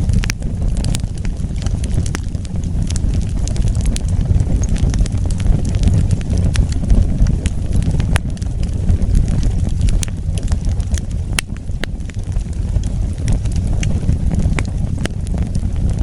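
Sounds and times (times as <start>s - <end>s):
wood fire crackling and popping: 0.0s - 16.0s.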